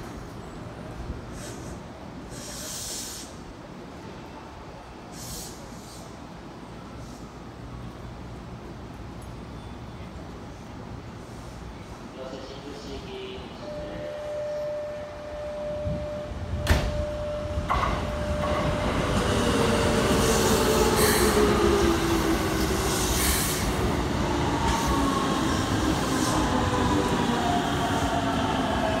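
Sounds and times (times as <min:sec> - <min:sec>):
electric train whine: 0:13.4 - 0:29.0.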